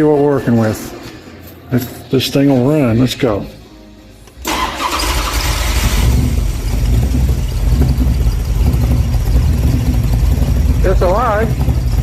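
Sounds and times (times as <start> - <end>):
racing engine starting and idling: 4.4 - 12.0.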